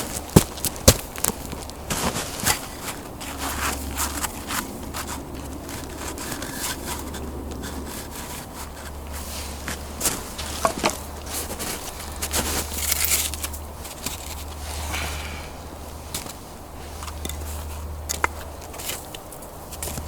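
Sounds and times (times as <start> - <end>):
wood scraping and rubbing: 1.9 - 15.6.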